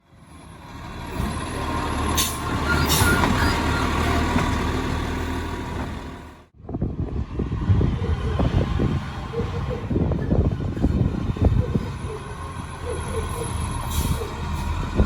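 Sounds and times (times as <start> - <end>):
diesel engine running: 0.1 - 6.5.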